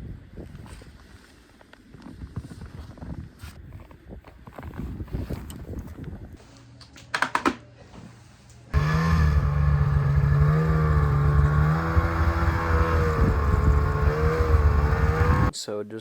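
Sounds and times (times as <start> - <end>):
snowmobile engine running loud: 8.8 - 15.5.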